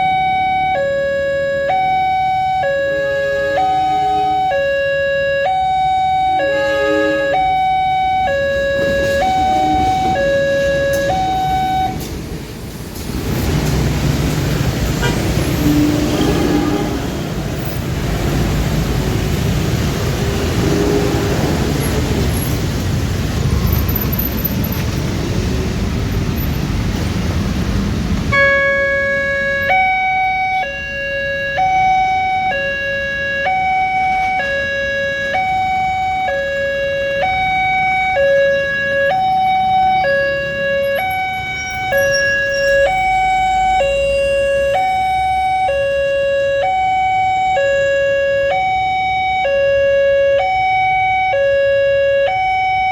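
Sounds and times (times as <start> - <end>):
level crossing two-tone alarm: 0.0 - 12.1, 28.3 - 52.9
road vehicle noise: 0.0 - 52.9.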